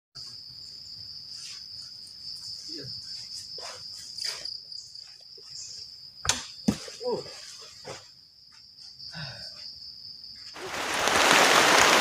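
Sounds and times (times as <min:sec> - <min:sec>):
insects trilling: 0:00.2 - 0:12.0.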